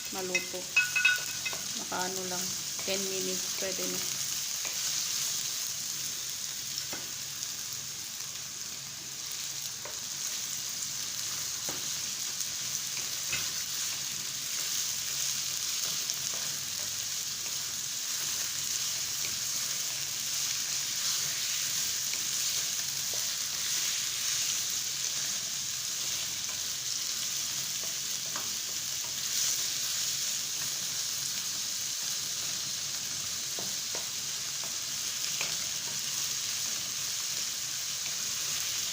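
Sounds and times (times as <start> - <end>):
chicken sizzling in a pan: 0.0 - 38.9.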